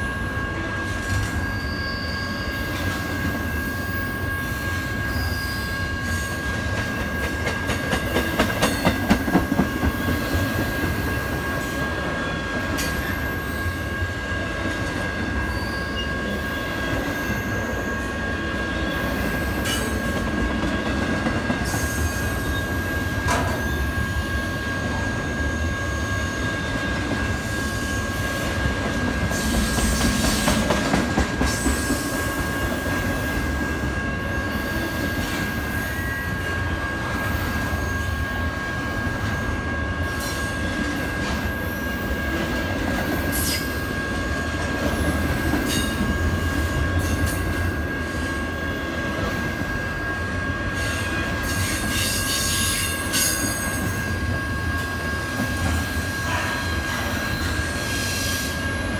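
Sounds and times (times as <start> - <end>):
train wheels rumbling on rail: 0.0 - 58.9
high-pitched wheel squeal: 1.0 - 6.5.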